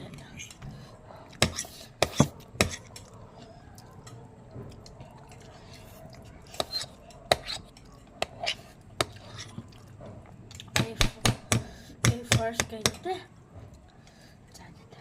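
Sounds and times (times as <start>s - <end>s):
chewing: 2.4s - 10.7s.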